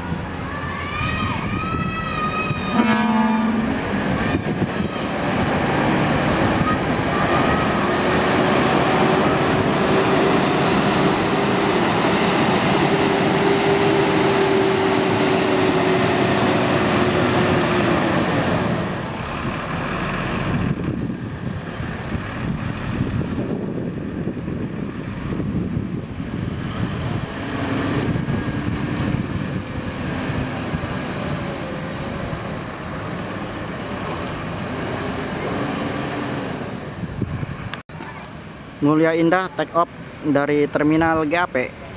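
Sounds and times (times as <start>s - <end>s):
bus diesel engine running: 0.0s - 41.9s
traffic noise: 0.0s - 41.9s.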